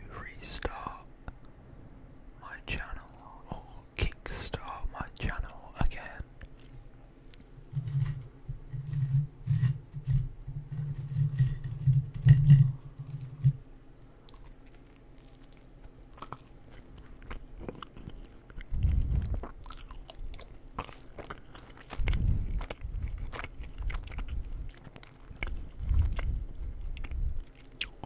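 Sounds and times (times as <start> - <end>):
chewing crisp fried food: 14.2 - 28.0.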